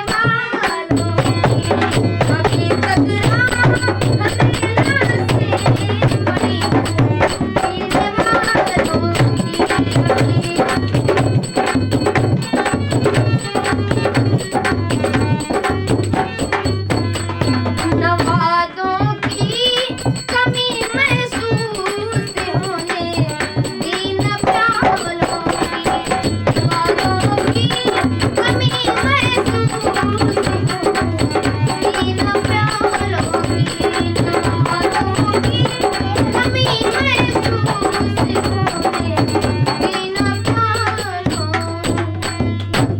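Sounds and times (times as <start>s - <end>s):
tabla rhythm: 0.0s - 42.9s.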